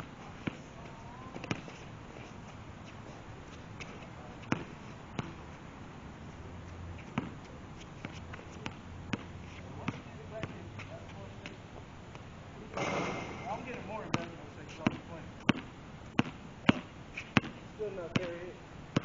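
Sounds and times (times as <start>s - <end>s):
basketball bouncing on court: 12.8s - 15.6s, 16.2s - 17.6s, 18.2s - 18.4s.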